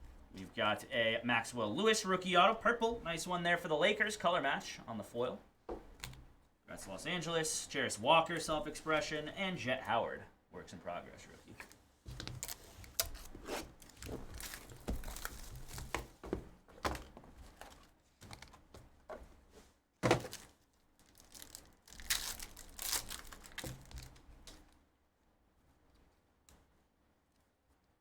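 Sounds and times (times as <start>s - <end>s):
wrapper crinkling and tearing: 12.2s - 16.1s, 20.1s - 24.6s.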